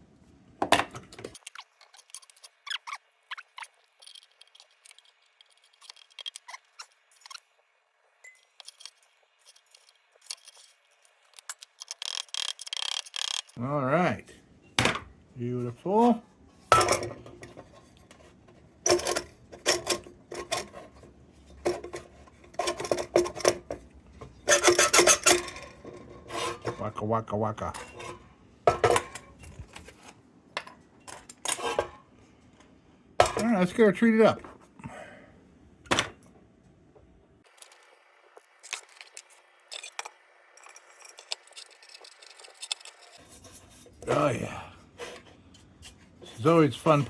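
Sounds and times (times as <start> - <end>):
metal lantern parts clinking: 3.6 - 7.4, 8.2 - 13.6, 24.4 - 26.8, 27.6 - 29.7, 38.6 - 43.9.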